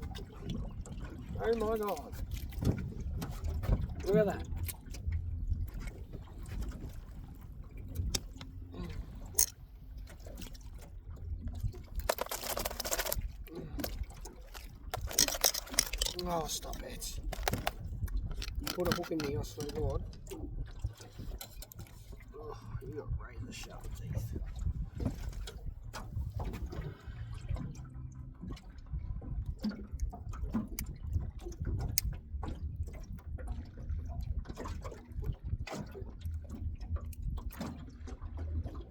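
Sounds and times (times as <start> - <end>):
water splashing and dripping: 0.0 - 22.4, 23.8 - 38.9
sharp clicks and knocks: 12.0 - 20.0.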